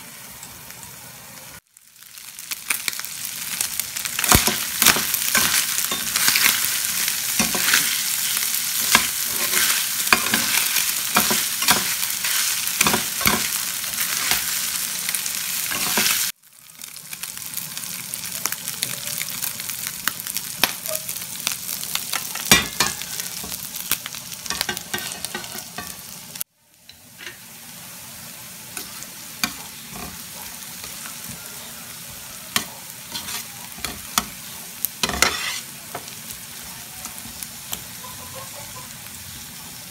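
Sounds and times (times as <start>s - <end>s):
meat sizzling in a pan: 0.0s - 39.9s
vegetables sizzling in butter: 0.0s - 39.9s
metal spatula scraping a pan: 4.2s - 14.5s, 15.7s - 16.3s, 24.5s - 26.0s, 28.8s - 30.2s, 32.5s - 34.3s, 35.0s - 36.1s.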